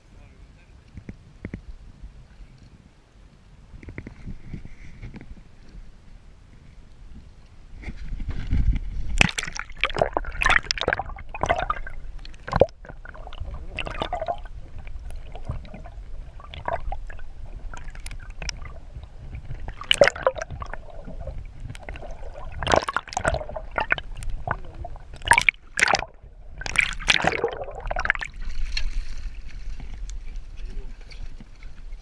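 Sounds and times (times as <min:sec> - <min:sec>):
water gurgling and splashing: 0:08.9 - 0:32.0.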